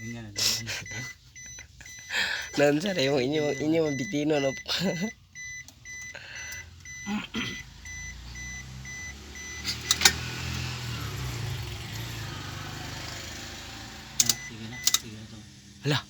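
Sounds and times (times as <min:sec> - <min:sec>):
electronic chime beeping: 0:00.0 - 0:09.7
car engine cranking on starter: 0:05.4 - 0:15.8
sharp clicks: 0:14.2 - 0:15.1.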